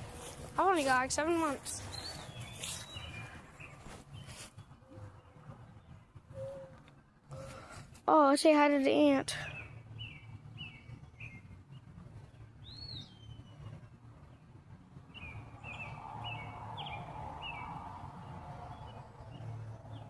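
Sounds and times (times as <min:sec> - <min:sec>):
birds chirping: 0:00.0 - 0:07.7, 0:08.9 - 0:20.0.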